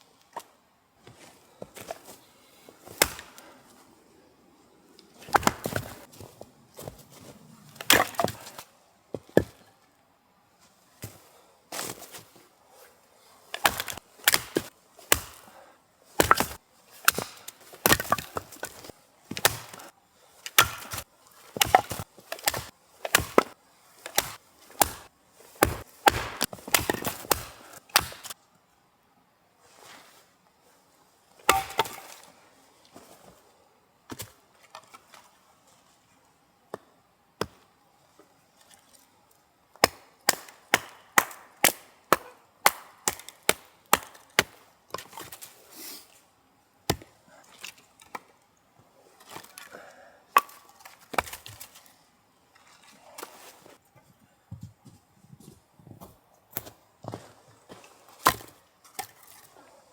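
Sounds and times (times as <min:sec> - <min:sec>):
firewood being chopped: 0:02.8 - 0:03.5, 0:05.2 - 0:06.2, 0:07.7 - 0:09.7, 0:13.5 - 0:15.5, 0:16.2 - 0:28.4, 0:31.4 - 0:32.3, 0:39.8 - 0:45.5, 0:46.9 - 0:47.2, 0:50.4 - 0:51.7, 0:56.5 - 0:59.2.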